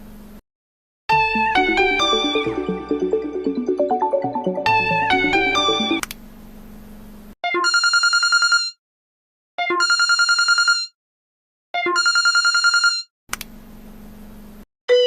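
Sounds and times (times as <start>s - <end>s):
telephone ringing: 7.5s - 8.8s, 9.6s - 11.0s, 11.8s - 13.1s.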